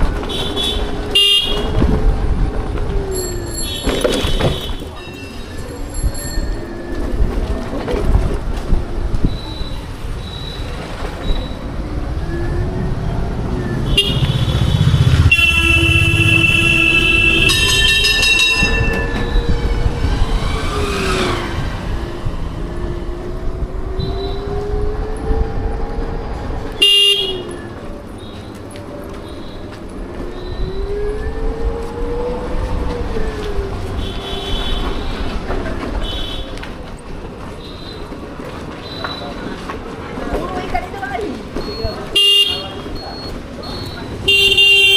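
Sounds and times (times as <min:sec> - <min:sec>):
road and wind rumble: 0:00.0 - 0:44.9
wind rumble on microphone: 0:00.8 - 0:03.2, 0:05.8 - 0:10.3, 0:17.2 - 0:26.8
horn blast: 0:13.8 - 0:20.0
short high-pitched beeps: 0:42.9 - 0:44.1.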